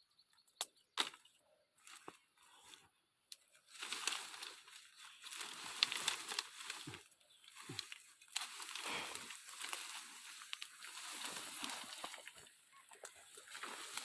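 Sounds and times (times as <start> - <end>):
twigs snapping: 0.5 - 2.2, 3.3 - 14.0
leaves rustling and crackling: 3.4 - 14.0.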